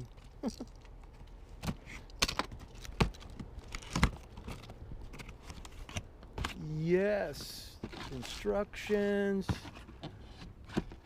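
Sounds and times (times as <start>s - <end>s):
packaging cracking and clicking: 2.1s - 6.0s.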